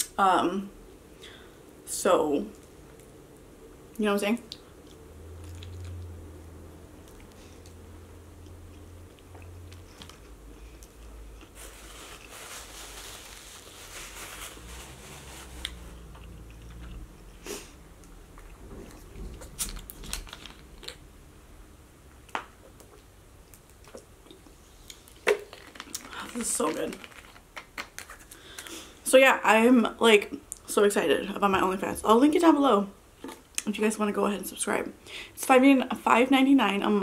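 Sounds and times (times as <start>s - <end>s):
person chewing food: 4.5s - 6.4s, 8.4s - 12.3s, 15.6s - 21.0s.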